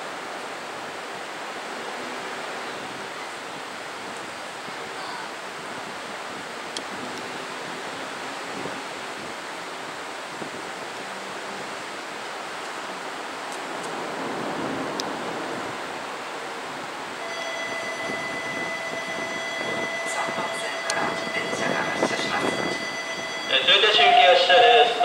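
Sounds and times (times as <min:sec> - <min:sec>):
subway train hissing: 0:15.3 - 0:25.0
steady multi-pitch tone: 0:17.2 - 0:25.0.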